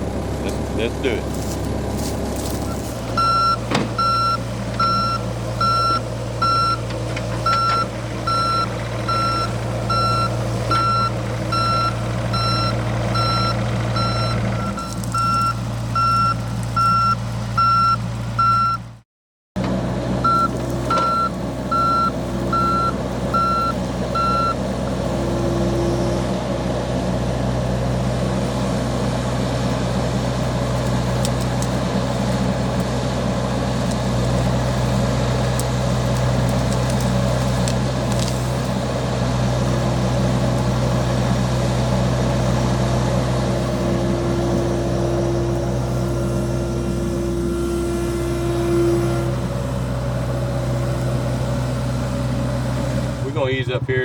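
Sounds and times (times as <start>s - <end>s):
excavator diesel engine running: 0.0s - 19.0s, 19.6s - 54.0s
travel alarm beeping: 3.2s - 6.8s, 7.4s - 18.8s, 20.2s - 24.6s.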